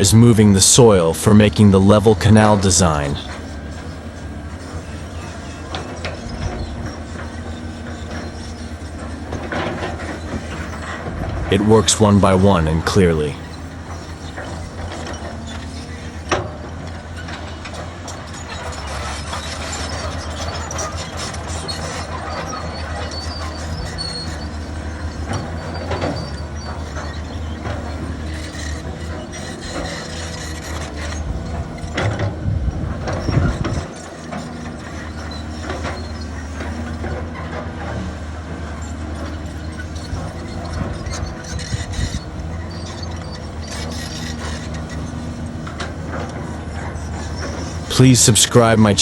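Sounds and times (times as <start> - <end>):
diesel engine running: 0.0 - 49.0
metallic clanks and squeaks: 0.6 - 49.0.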